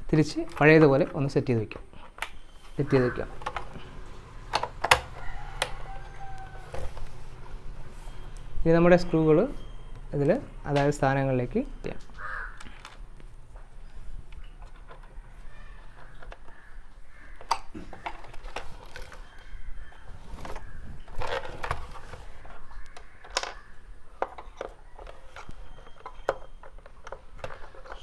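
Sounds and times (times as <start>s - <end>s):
screwdriver on plastic casing: 1.8s - 8.2s.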